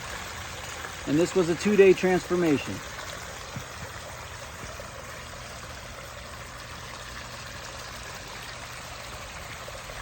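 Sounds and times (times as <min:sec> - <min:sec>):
waterfall splashing: 0:00.0 - 0:05.5.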